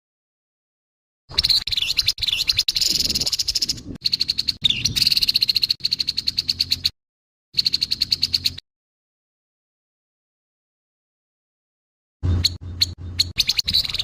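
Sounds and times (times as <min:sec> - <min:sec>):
bird harsh rattling calls: 0:01.3 - 0:06.9, 0:07.6 - 0:08.6, 0:12.2 - 0:14.0.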